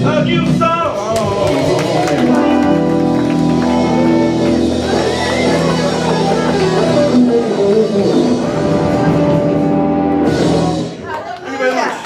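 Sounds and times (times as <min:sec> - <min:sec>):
electric guitar melody: 0:00.0 - 0:11.0
live rock band playing: 0:00.0 - 0:11.2.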